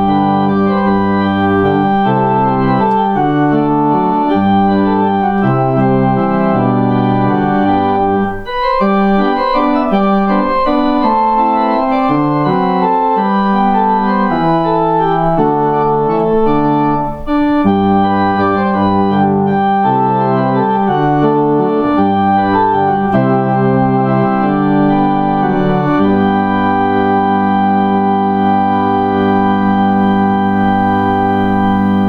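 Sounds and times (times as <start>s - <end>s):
organ playing sustained chords: 0.0s - 32.0s.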